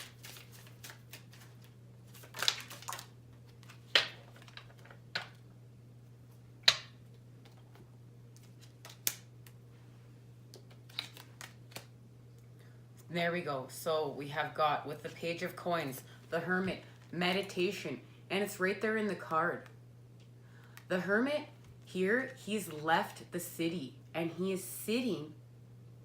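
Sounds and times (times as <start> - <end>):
steady low hum: 0.0 - 26.0
cards snapping and tapping on table: 6.6 - 7.6.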